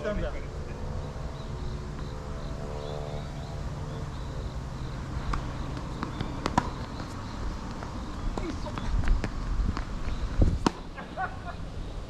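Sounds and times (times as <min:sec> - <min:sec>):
steady low hum: 0:00.0 - 0:12.0
tennis balls being struck: 0:05.1 - 0:09.9, 0:10.6 - 0:10.9
wind on microphone: 0:08.2 - 0:10.7.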